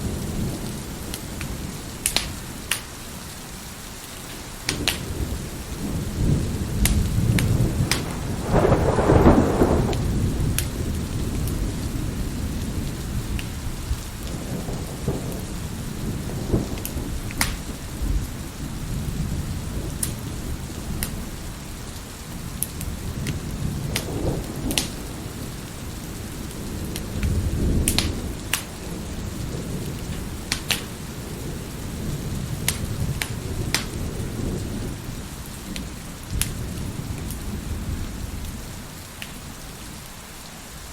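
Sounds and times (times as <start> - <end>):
steady rain: 0.0 - 40.9
wood fire crackling and popping: 2.0 - 2.9, 4.1 - 5.1, 6.8 - 10.8, 16.8 - 17.6, 24.7 - 25.0, 27.8 - 28.7, 30.5 - 30.9, 32.6 - 33.9
rolling thunder: 4.7 - 21.6, 22.4 - 38.8.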